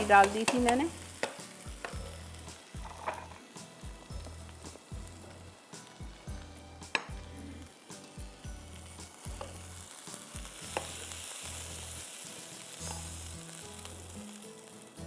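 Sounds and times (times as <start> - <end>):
noodles sizzling in a wok: 0.0 - 15.0
spatula clicking against a pan: 0.2 - 2.0.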